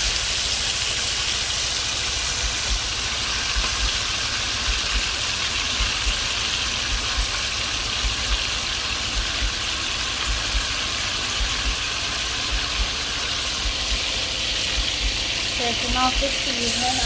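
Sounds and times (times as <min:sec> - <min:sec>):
meat sizzling in a pot: 0:00.0 - 0:17.0
low thumps: 0:11.4 - 0:11.9.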